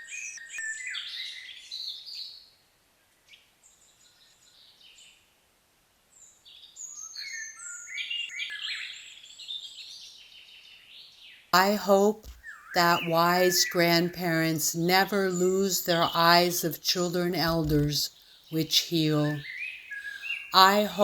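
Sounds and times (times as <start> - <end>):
birds singing and chirping: 6.7 - 21.0.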